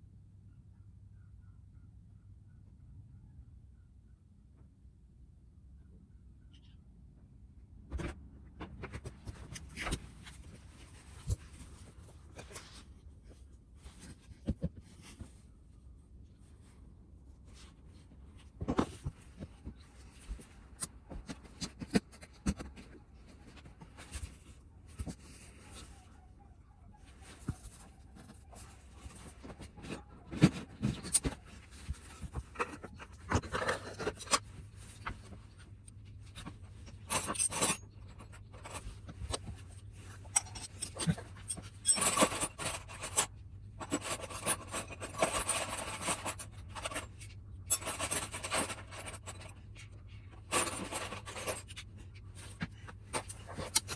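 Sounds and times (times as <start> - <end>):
metal tools clinking and scraping: 27.2 - 53.9.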